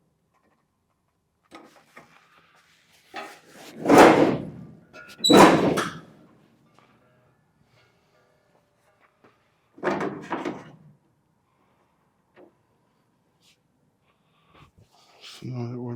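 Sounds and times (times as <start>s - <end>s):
rattling sheet metal thuds: 3.6s - 6.1s.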